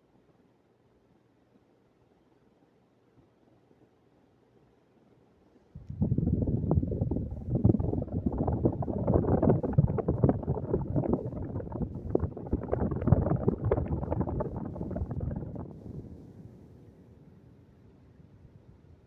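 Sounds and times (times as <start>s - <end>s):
fan air buffeting microphone: 5.8s - 16.9s.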